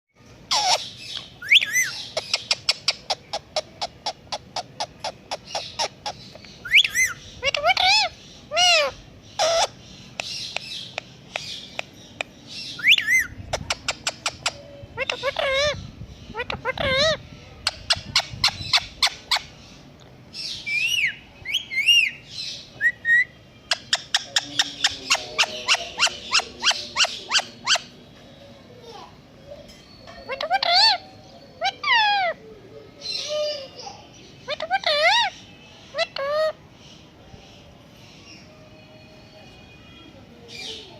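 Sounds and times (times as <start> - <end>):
parrot call: 0.5 - 9.8, 20.6 - 28.0, 29.6 - 32.5, 34.4 - 36.6
parakeet chirping: 0.5 - 11.9, 12.5 - 19.7, 20.4 - 28.0, 29.5 - 32.4, 34.3 - 36.6.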